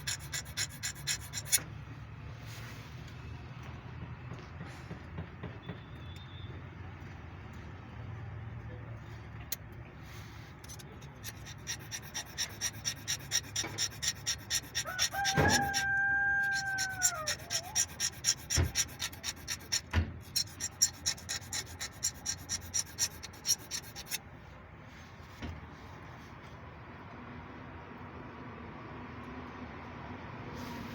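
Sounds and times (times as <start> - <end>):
rhythmic scraping strokes: 0.0 - 1.6, 10.6 - 24.2
held squeal: 10.6 - 24.2.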